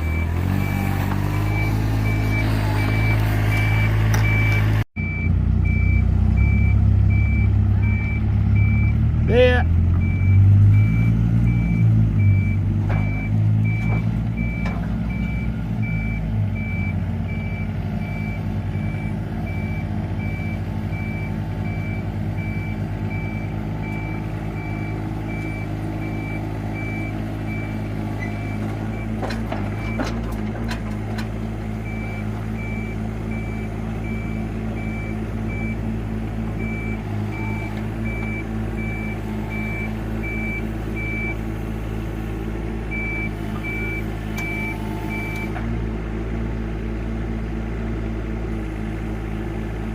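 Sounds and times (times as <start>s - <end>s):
backup alarm beeping: 0.0s - 9.0s, 10.0s - 29.2s, 42.9s - 45.6s
diesel engine running: 0.0s - 49.9s.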